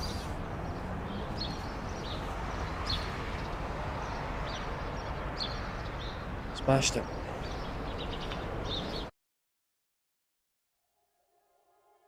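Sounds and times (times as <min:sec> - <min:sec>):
small birds chirping: 0:00.0 - 0:09.1
steady outdoor hiss: 0:00.0 - 0:09.1.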